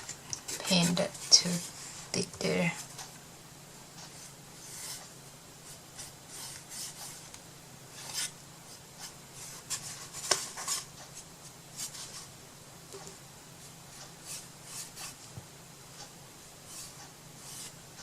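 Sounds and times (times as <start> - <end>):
paintbrush strokes on wood: 16.6 - 17.8.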